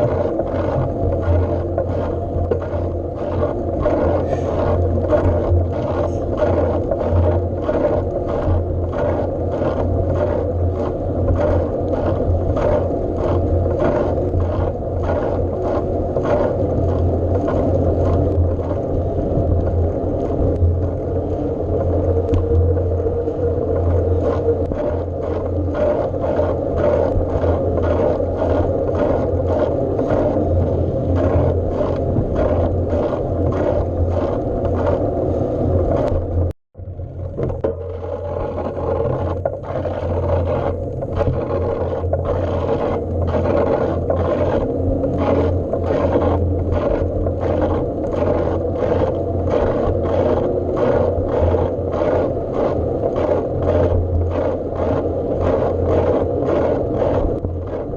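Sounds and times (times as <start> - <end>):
bike riding rumble: 0.0 - 57.9
scraping tick: 22.3 - 22.6.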